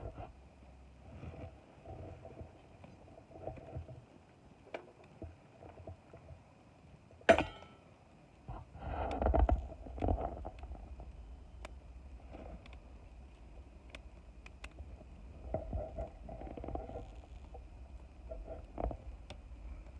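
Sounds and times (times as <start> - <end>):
loud knock with ring: 7.3 - 7.8
wood fire crackling: 10.5 - 15.2.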